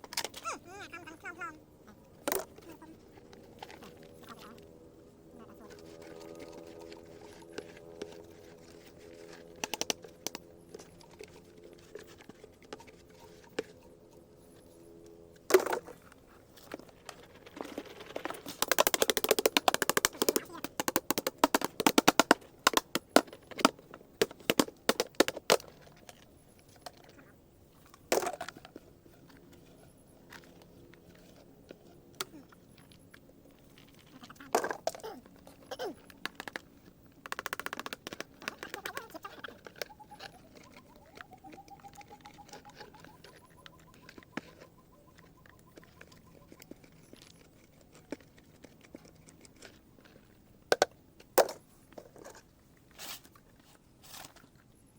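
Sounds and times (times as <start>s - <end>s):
dry gourds knocking: 2.2s - 4.7s, 5.5s - 13.9s, 16.7s - 26.2s, 34.0s - 49.8s.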